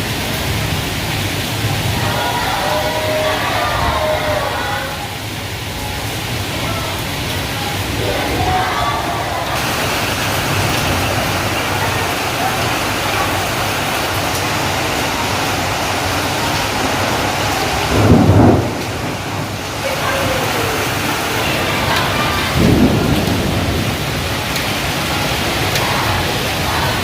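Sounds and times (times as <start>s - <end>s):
heavy rain falling: 0.0s - 27.0s
low rumbles of thunder: 17.3s - 19.8s, 21.8s - 26.7s.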